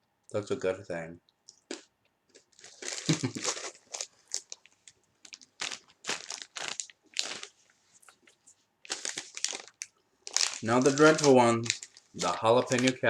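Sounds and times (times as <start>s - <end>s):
plastic bag crinkling: 2.3s - 13.0s.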